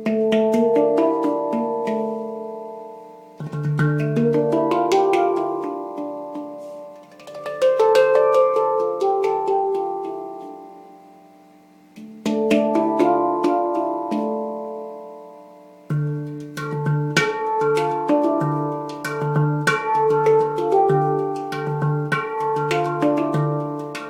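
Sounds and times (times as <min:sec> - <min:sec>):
handpan melody: 0:00.0 - 0:24.0.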